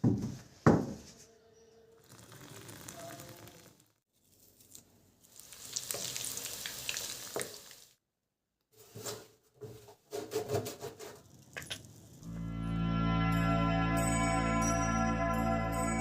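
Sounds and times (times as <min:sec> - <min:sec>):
food sizzling in a pan: 0:05.2 - 0:08.0.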